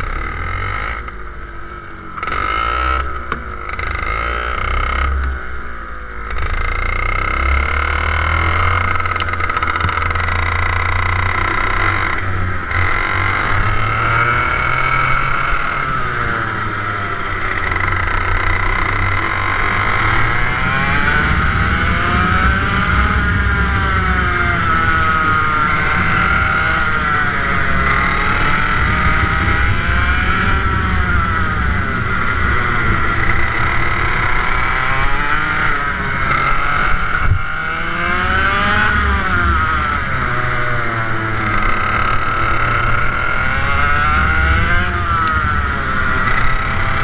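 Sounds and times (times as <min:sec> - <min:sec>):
kart engine revving: 0:00.0 - 0:47.0.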